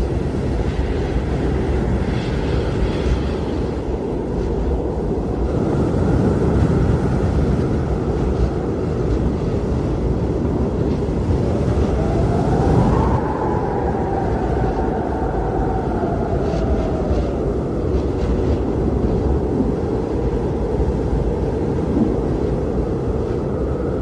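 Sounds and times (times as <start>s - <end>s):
blizzard wind blowing hard: 0.0s - 24.0s
whistling wind tone: 0.0s - 24.0s.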